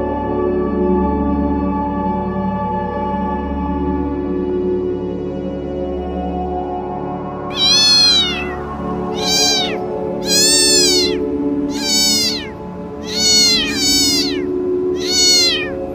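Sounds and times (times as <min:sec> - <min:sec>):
animal high-pitched calls: 0:07.5 - 0:15.9.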